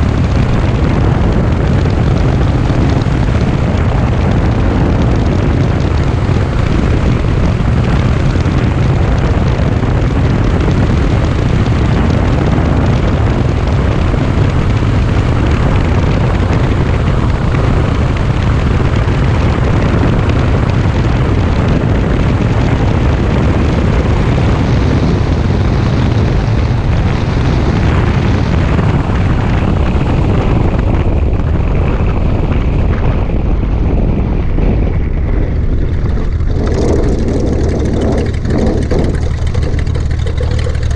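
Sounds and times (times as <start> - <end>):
light aircraft engine droning: 0.0 - 40.9.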